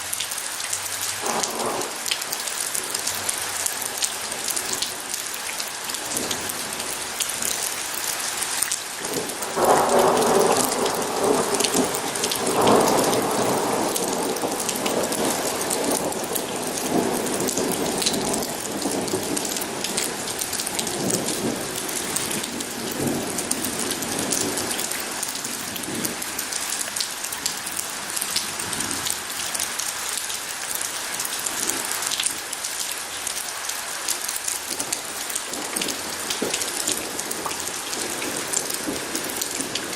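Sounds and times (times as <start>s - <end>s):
steady rain falling: 0.0s - 39.9s
rolling thunder: 1.2s - 2.0s, 9.1s - 26.2s, 34.8s - 39.9s.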